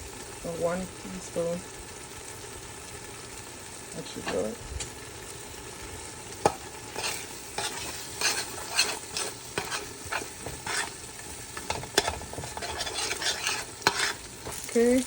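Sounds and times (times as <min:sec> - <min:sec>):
spices sizzling in oil: 0:00.0 - 0:15.0
spoon scraping a pot: 0:06.5 - 0:14.7.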